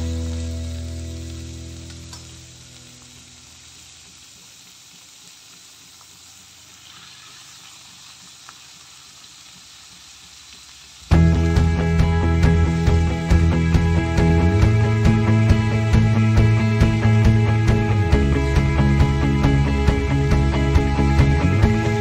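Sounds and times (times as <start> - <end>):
vegetables sizzling in oil: 0.0 - 22.0
loud background music: 11.1 - 22.0.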